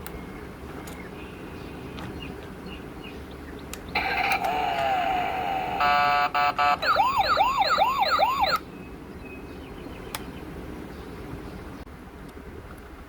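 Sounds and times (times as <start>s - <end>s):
toy electronic siren: 4.0s - 8.6s.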